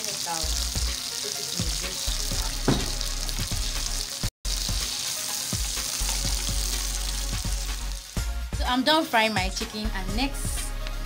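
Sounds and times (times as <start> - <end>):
chicken sizzling in a frying pan: 0.0 - 8.8.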